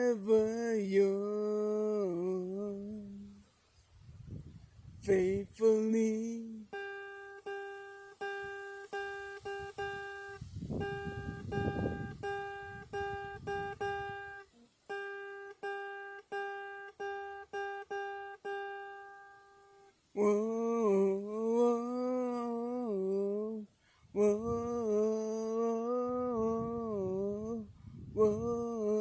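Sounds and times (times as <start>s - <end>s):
guitar plucking one note: 5.1s - 23.5s.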